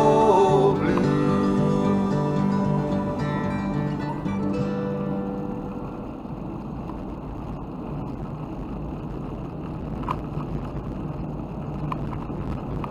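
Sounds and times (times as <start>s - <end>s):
low rumbling noise: 0.0s - 10.0s.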